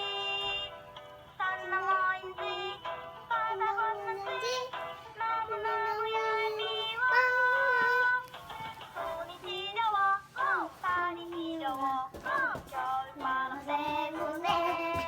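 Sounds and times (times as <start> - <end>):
background music: 0.0 - 15.0
child singing: 1.4 - 8.3, 10.4 - 15.0.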